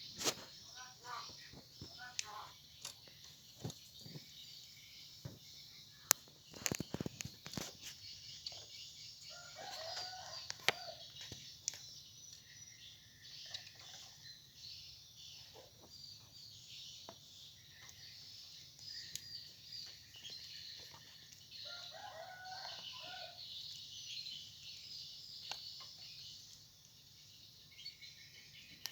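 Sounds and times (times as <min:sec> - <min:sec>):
small birds chirping: 0:00.0 - 0:28.9
distant rooster crowing: 0:09.3 - 0:11.1, 0:21.6 - 0:23.4.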